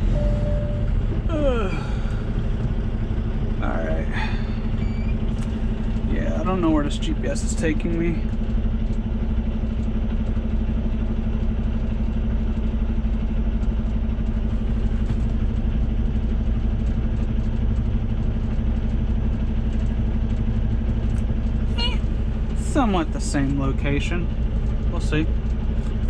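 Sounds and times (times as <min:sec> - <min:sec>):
road noise: 0:00.0 - 0:08.6, 0:21.0 - 0:26.0
truck diesel engine droning: 0:00.0 - 0:26.0.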